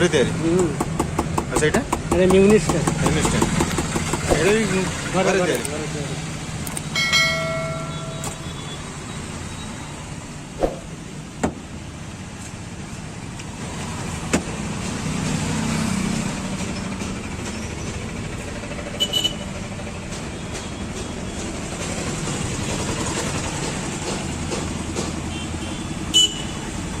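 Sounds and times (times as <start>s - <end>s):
passing vehicles hum: 0.0s - 27.0s
sharp knocks: 0.8s - 4.7s, 10.6s - 11.6s.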